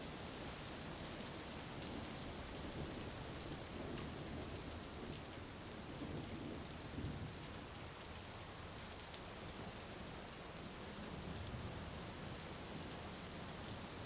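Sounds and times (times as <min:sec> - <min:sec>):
heavy rain falling: 0:00.1 - 0:14.0
low rumble of thunder: 0:02.6 - 0:07.5.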